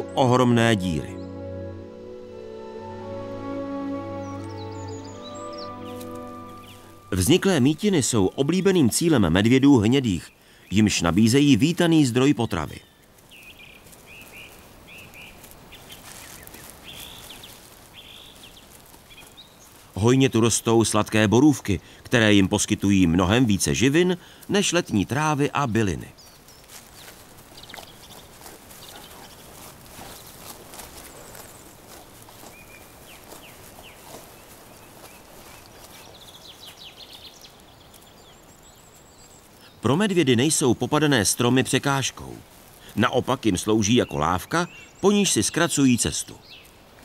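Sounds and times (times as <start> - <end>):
thin high trill: 0.0 - 7.9
forest ambience hiss: 0.0 - 47.0
rustling in undergrowth: 0.0 - 47.0
songbirds chirping: 0.0 - 47.0
small bird chirping: 26.2 - 39.8.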